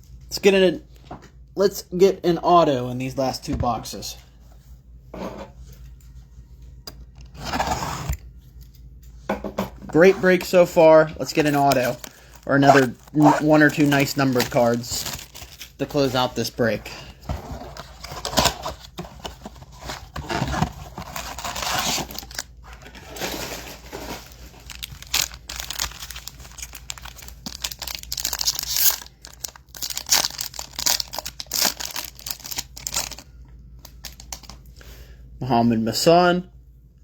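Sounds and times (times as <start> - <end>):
foil wrappers tearing and crinkling: 11.2 - 17.1, 17.7 - 33.2.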